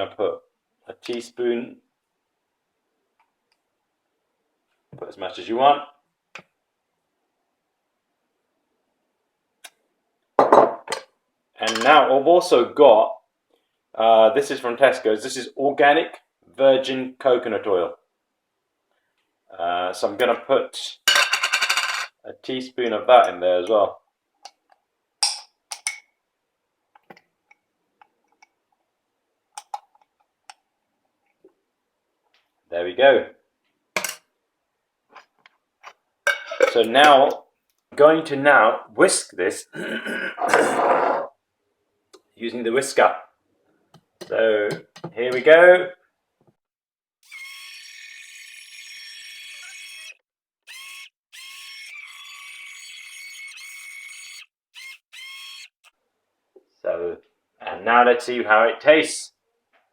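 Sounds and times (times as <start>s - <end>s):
electric whisk motor whine: 50.7s - 55.7s.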